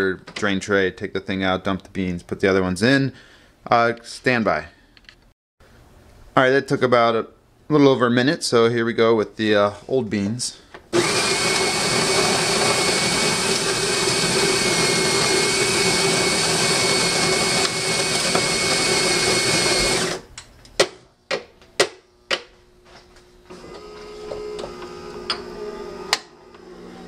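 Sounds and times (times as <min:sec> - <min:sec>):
coffee grinder grinding beans: 0:11.0 - 0:20.3, 0:23.5 - 0:27.0.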